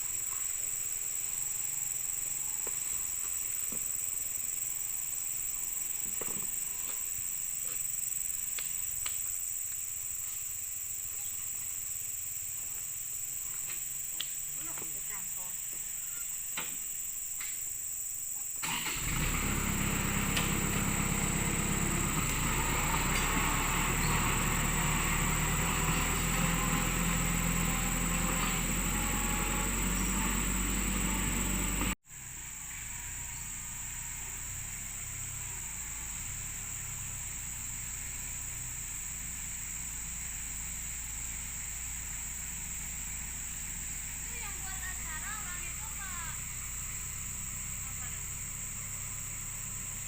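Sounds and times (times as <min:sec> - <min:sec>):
insects shrilling: 0:00.0 - 0:50.0
machine engine running: 0:18.8 - 0:35.8.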